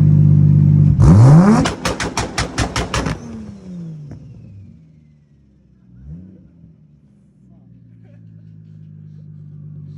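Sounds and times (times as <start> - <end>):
exhaust backfire pops: 0.8 - 4.7
car engine idling: 1.7 - 9.9.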